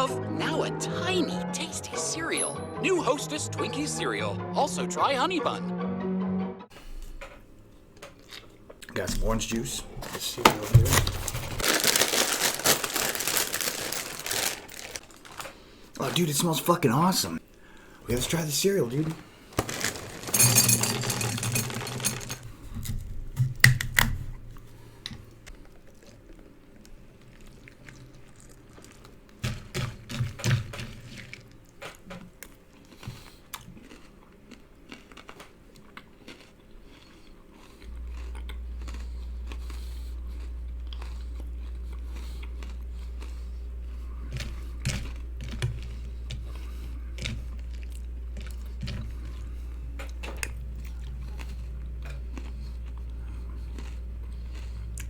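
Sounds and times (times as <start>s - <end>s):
steady low hum: 6.7s - 11.6s, 35.5s - 55.0s
cereal crunching: 8.2s - 16.2s, 18.1s - 22.5s, 25.7s - 55.0s
cereal packet rustling: 9.3s - 16.7s, 18.1s - 22.5s.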